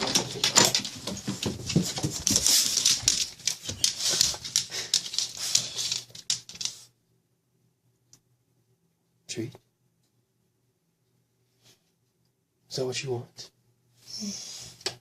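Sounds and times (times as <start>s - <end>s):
dog clicking and rustling: 0.0s - 6.9s.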